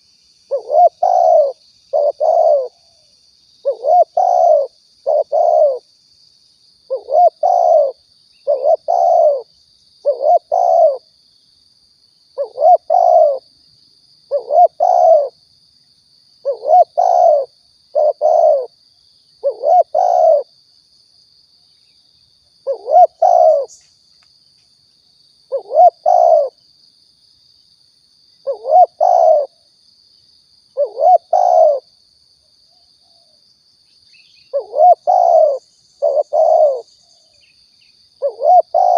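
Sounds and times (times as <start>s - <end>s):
dove cooing: 0.5s - 5.9s, 6.9s - 11.1s, 12.4s - 13.4s, 14.3s - 15.4s, 16.4s - 18.7s, 19.4s - 20.5s, 22.6s - 23.8s, 25.5s - 26.6s, 28.4s - 29.6s, 30.8s - 31.9s, 34.5s - 36.9s, 38.2s - 38.9s.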